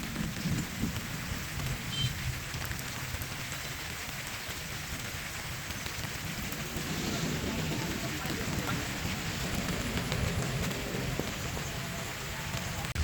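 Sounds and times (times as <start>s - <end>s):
light rain hissing: 0.0s - 13.0s
low rumble: 6.1s - 13.0s.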